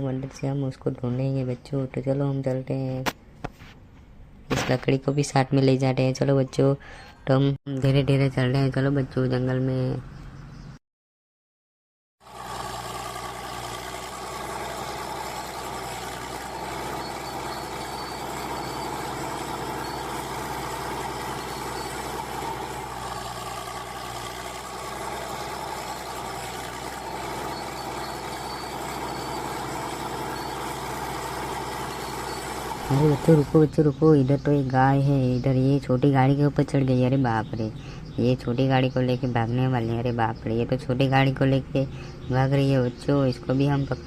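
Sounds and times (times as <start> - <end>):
truck engine running: 12.2 - 35.5.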